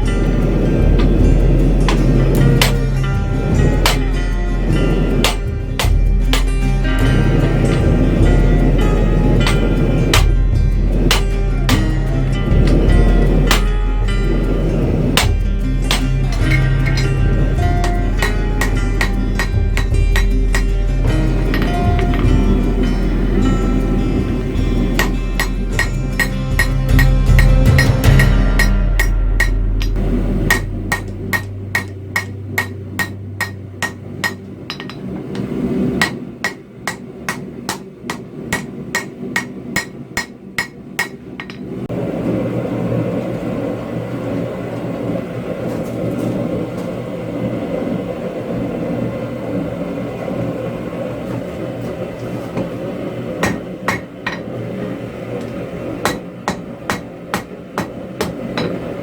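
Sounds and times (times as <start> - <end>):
steady rushing noise: 0.0 - 59.0
hammer striking steel on anvil: 0.9 - 13.8, 15.2 - 41.7, 53.4 - 54.5, 56.0 - 58.9.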